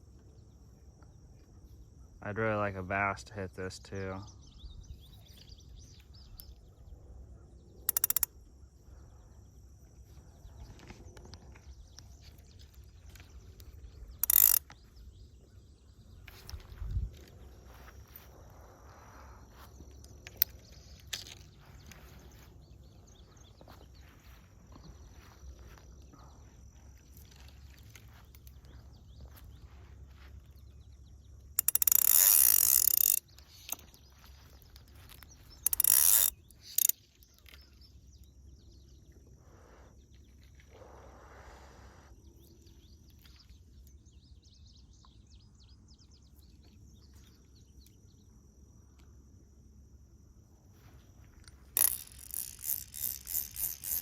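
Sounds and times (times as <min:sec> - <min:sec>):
insect buzzing: 0:01.5 - 0:43.8, 0:46.4 - 0:54.0
fly reel drag buzzing: 0:07.8 - 0:08.5, 0:12.3 - 0:15.0, 0:31.4 - 0:37.7, 0:51.3 - 0:54.0.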